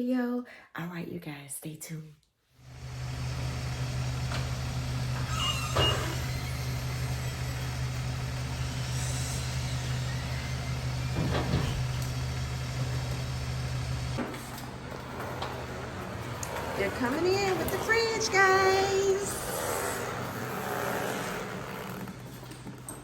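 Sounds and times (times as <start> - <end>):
truck engine idling: 2.7 - 20.5.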